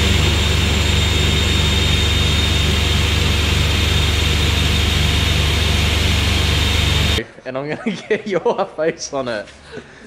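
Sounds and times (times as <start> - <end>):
car engine running: 0.0 - 7.2
thin high whine: 0.0 - 7.2.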